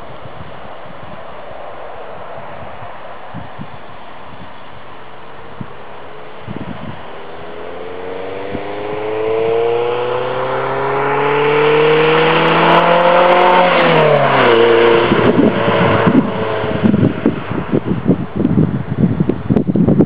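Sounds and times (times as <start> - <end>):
rough uneven engine noise: 0.0 - 19.7
car engine accelerating: 4.3 - 18.5.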